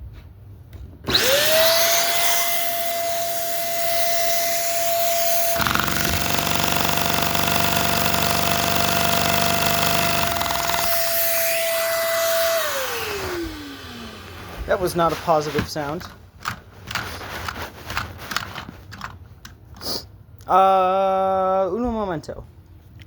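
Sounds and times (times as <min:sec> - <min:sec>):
vacuum cleaner motor whine: 0:01.1 - 0:06.2, 0:10.1 - 0:15.4
toy engine clattering rapidly: 0:05.4 - 0:11.5.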